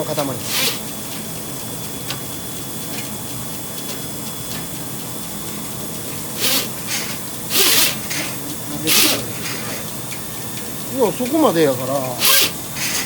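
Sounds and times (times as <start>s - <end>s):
drain-cleaning machine running: 0.0s - 13.0s
short hissing bursts: 0.4s - 0.9s, 6.3s - 11.6s, 12.2s - 13.0s.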